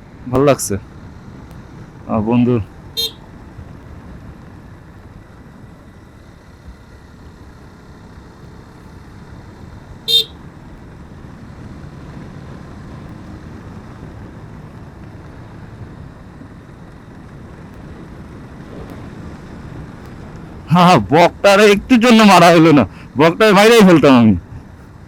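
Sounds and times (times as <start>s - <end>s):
motorcycle engine and road rumble: 0.0s - 25.0s
horn beep: 3.0s - 3.2s, 10.1s - 10.4s.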